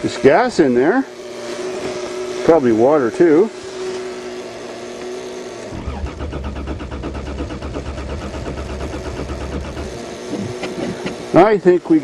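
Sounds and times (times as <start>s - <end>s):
steady hum: 1.6s - 11.6s
starter cranking car engine: 5.6s - 11.4s.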